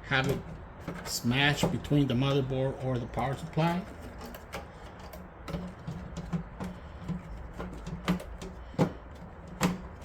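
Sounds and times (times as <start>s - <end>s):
hands tapping inside pc case: 5.4s - 10.0s.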